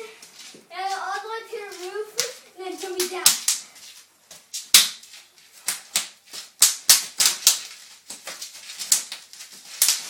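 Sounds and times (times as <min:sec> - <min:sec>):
bubble wrap popping underfoot: 0:00.5 - 0:10.0.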